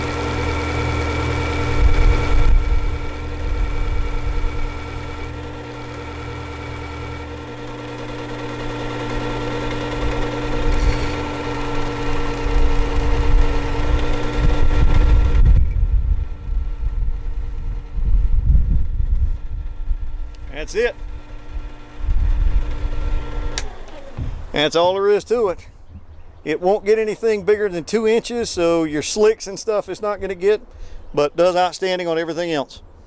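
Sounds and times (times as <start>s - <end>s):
chisel on abrasive wheel: 0.0s - 2.5s, 4.8s - 15.0s
sharpener motor hum: 0.0s - 24.9s.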